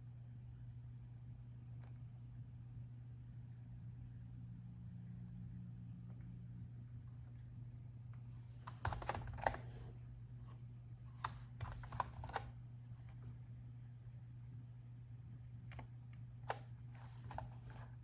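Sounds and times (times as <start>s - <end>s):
low steady hum: 0.0s - 18.0s
laptop keyboard typing: 8.7s - 9.9s, 11.2s - 12.6s, 15.7s - 18.0s.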